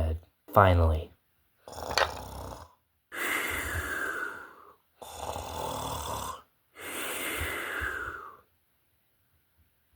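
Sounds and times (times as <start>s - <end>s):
person snoring: 1.6s - 8.4s.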